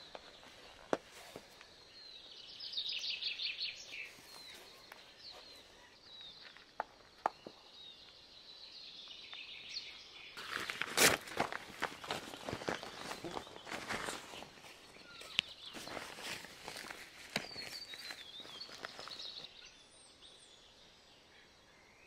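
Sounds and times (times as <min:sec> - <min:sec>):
birds singing: 0:00.0 - 0:22.0
footsteps crunching on track: 0:10.4 - 0:19.5.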